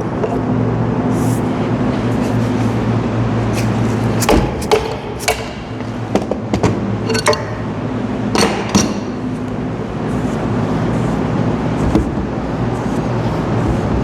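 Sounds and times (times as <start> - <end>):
steady low hum: 0.0 - 14.0
metal knocks and clinks: 4.2 - 9.3.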